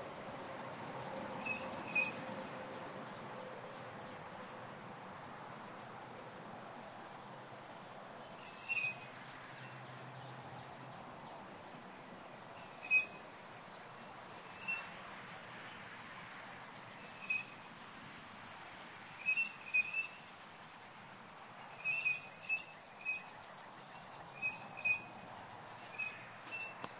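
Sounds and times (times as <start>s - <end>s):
cicadas droning: 0.0s - 26.9s
bird shrill whistle calls: 1.4s - 2.2s, 8.4s - 9.1s, 12.6s - 13.2s, 14.5s - 14.9s, 17.0s - 17.6s, 19.1s - 20.2s, 21.7s - 23.3s, 24.3s - 25.1s, 25.8s - 26.9s.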